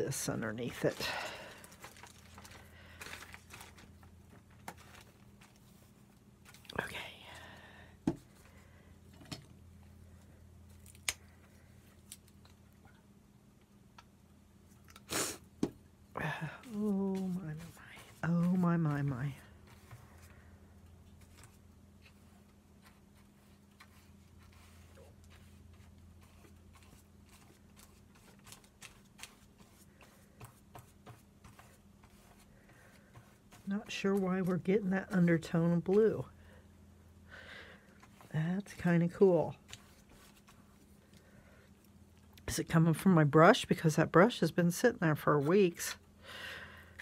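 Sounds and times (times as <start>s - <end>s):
low steady hum: 0.0s - 47.0s
paintbrush taps and paper rustles: 21.1s - 35.3s.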